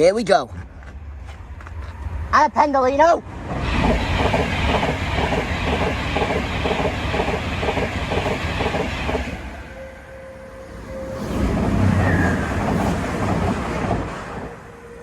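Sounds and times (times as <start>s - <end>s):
train rumble: 0.0s - 15.0s
train wheels clattering: 3.6s - 9.5s.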